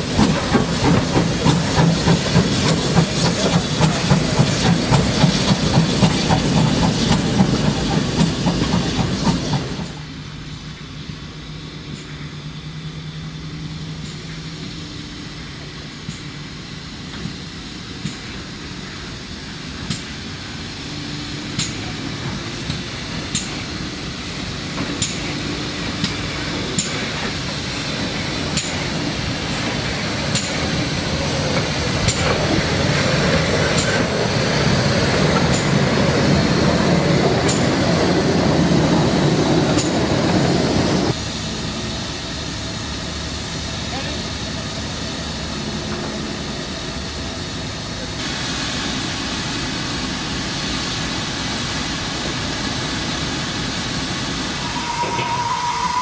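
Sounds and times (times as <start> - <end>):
train running noise: 0.0 - 56.0.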